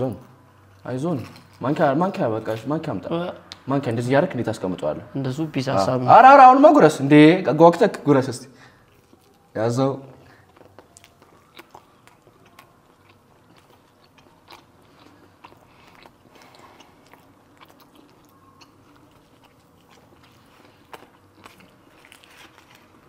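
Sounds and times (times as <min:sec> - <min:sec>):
people chewing with mouth clicks: 0:08.6 - 0:23.0.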